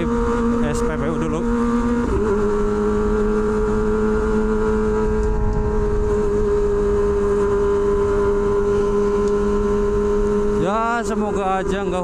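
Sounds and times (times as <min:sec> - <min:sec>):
motorcycle engine at high revs: 0:00.0 - 0:12.0
wind rumble on microphone: 0:01.6 - 0:10.5.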